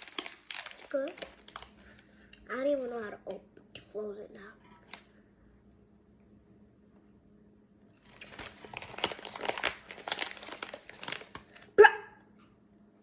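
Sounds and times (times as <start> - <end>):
plastic wrapper crinkling: 0.0 - 3.2, 4.8 - 5.1, 8.0 - 11.8.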